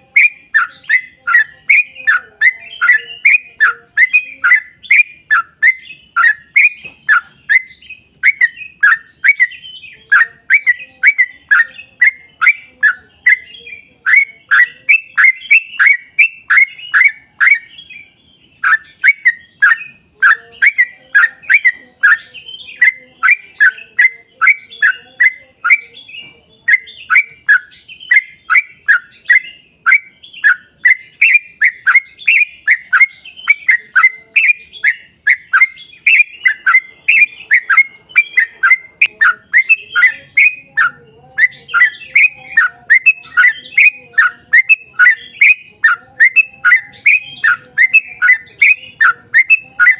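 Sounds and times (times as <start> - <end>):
bulbul singing: 0.0 - 49.9.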